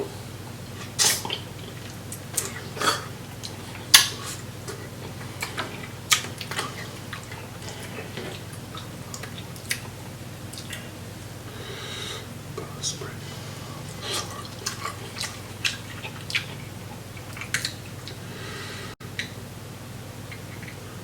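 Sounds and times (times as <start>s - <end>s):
faint low hum: 0.0s - 21.0s
wet mouth noises: 0.8s - 11.1s, 12.1s - 18.3s.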